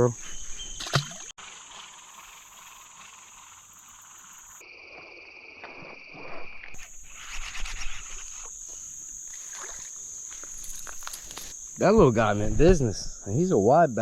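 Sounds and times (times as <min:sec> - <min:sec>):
insects buzzing: 0:00.0 - 0:14.0
rustling: 0:06.8 - 0:11.8.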